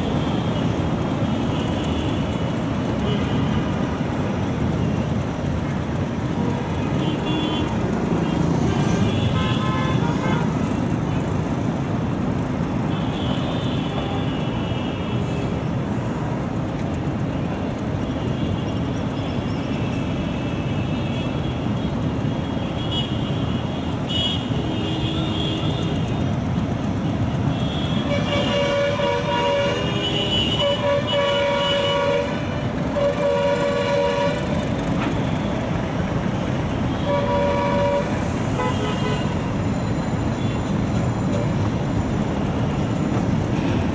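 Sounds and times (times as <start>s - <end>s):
train rumbling: 0.0s - 43.9s
train horn toots: 27.6s - 34.6s, 36.9s - 39.5s.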